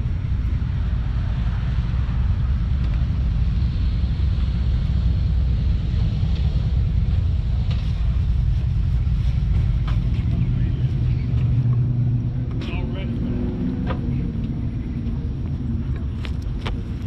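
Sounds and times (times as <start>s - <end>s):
cars driving past: 0.0s - 17.0s
wind buffeting microphone: 0.0s - 17.0s.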